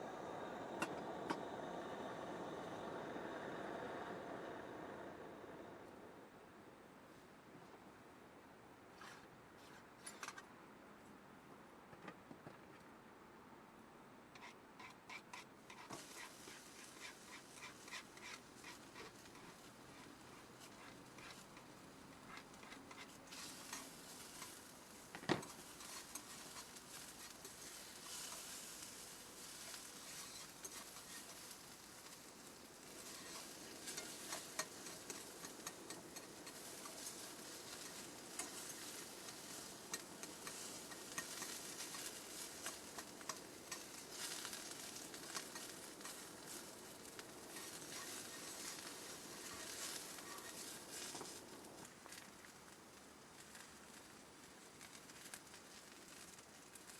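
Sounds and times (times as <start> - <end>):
food sizzling in a frying pan: 14.4 - 56.9.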